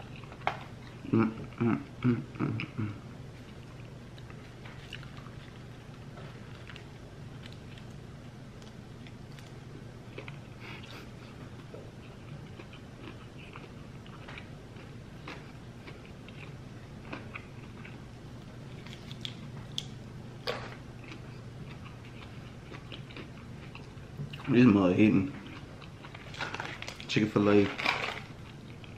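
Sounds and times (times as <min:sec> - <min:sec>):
low steady hum: 0:00.0 - 0:28.9
person chewing crunchy food: 0:03.4 - 0:08.0, 0:08.6 - 0:24.6, 0:25.3 - 0:28.9.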